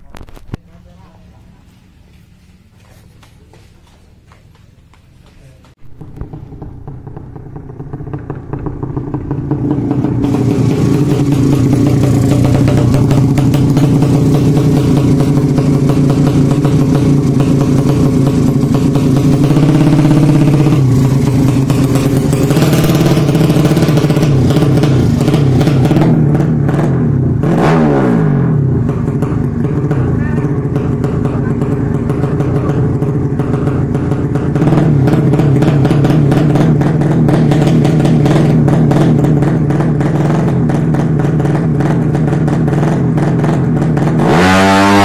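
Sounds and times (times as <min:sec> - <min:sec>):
motorcycle engine revving: 0:04.5 - 0:45.0.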